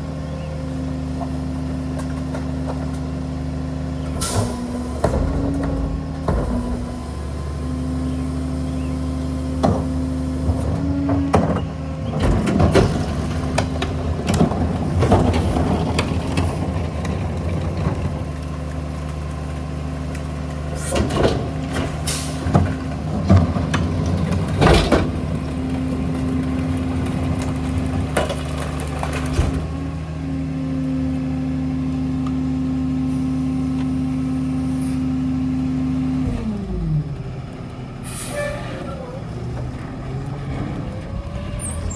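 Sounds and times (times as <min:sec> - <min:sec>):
garbage truck engine running: 0:00.0 - 0:41.9
loud bangs and metallic clatter: 0:04.5 - 0:07.4.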